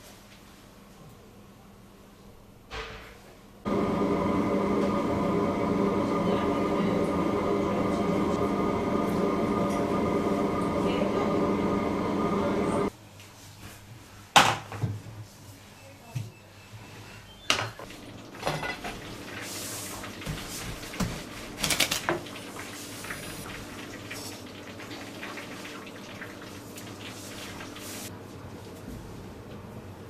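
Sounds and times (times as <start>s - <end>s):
steady low hum: 3.7s - 12.9s
dishes and utensils clinking: 18.4s - 19.1s.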